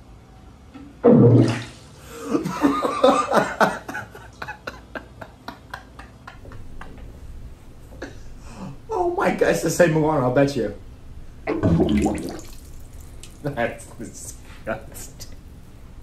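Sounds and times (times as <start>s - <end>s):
man laughing hard: 2.2s - 7.0s.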